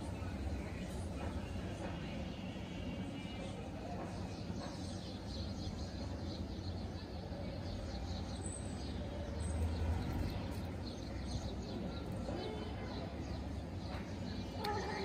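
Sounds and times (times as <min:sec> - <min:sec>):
birds chirping: 0:03.9 - 0:15.0.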